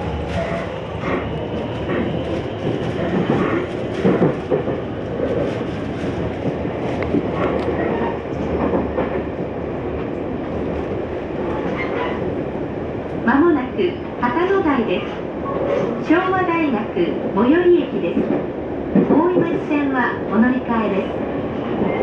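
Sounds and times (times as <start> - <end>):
train running rumble: 0.0 - 14.3.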